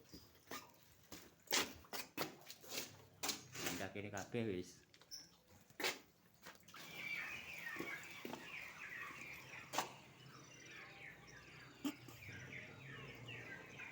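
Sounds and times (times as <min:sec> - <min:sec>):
small birds chirping: 0:04.3 - 0:13.9.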